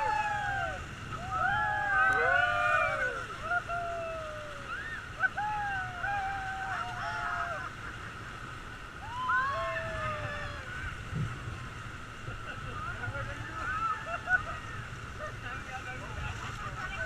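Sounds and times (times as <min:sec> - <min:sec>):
people shouting and whooping: 0:00.0 - 0:07.9, 0:09.0 - 0:11.0
river water rushing: 0:00.0 - 0:17.0.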